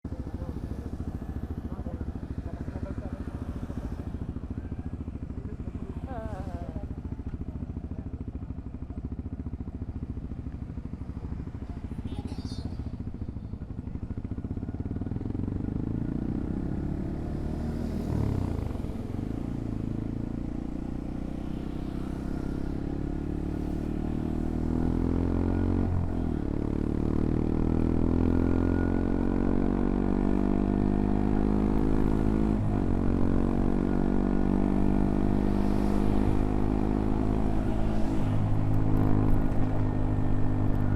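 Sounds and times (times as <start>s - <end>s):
motorcycle engine accelerating: 0.1s - 40.9s.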